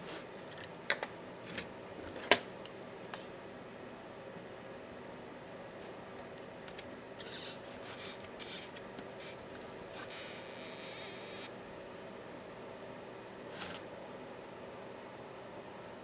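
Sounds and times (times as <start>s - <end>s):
scratchy rubs and scrapes: 7.2s - 11.5s.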